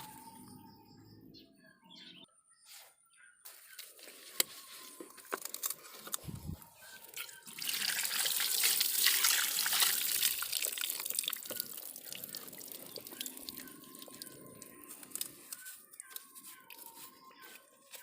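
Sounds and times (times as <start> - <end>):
water dripping: 7.1 - 16.1.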